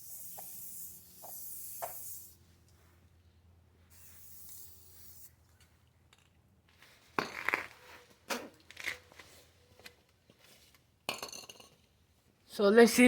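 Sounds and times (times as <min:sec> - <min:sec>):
aerosol can spraying: 0:00.0 - 0:02.4, 0:03.9 - 0:05.3.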